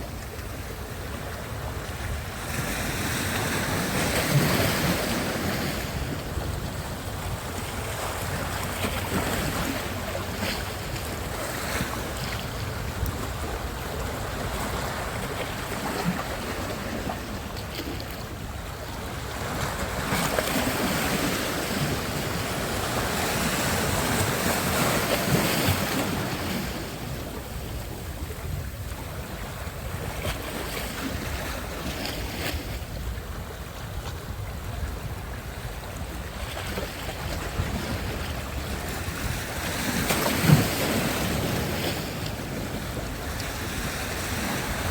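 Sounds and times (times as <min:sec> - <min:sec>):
waves breaking and washing in: 0:00.0 - 0:44.9.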